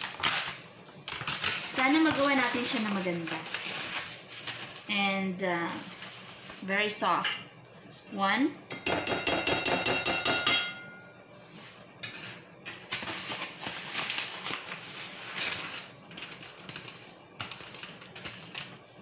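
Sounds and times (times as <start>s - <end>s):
tapping on ringing enamel bowl: 8.7s - 11.1s.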